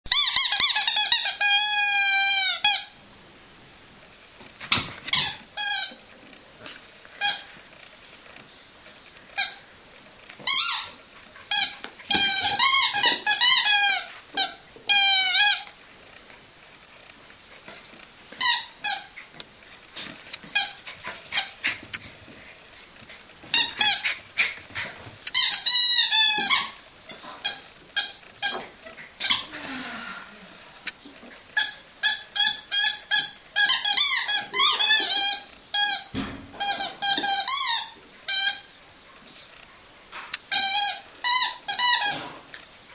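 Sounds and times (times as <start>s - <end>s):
squeaky dog toy squeaking: 0.1s - 3.0s, 5.1s - 6.0s, 7.2s - 7.5s, 9.4s - 9.6s, 10.4s - 15.7s, 18.4s - 19.2s, 20.5s - 21.8s, 23.5s - 24.1s, 25.3s - 26.8s, 27.4s - 29.5s, 31.6s - 38.7s, 40.5s - 42.2s.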